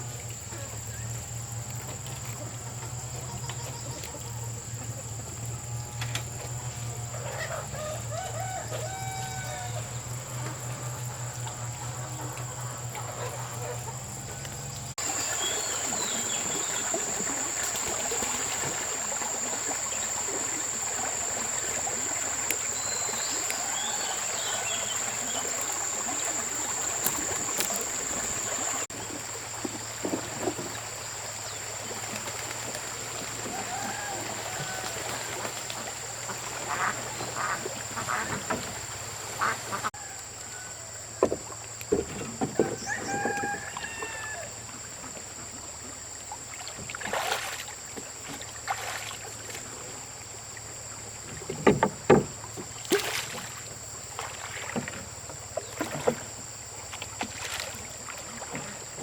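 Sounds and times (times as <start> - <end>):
chickens clucking: 5.8 - 28.9
rooster crowing: 7.3 - 10.1, 23.5 - 25.2, 33.4 - 35.4, 40.0 - 41.0, 42.6 - 44.6.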